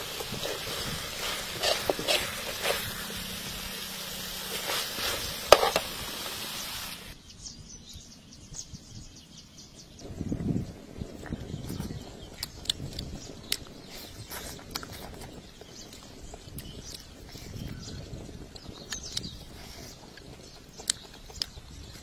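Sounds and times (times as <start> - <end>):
chicken sizzling in a wok: 0.0 - 7.2.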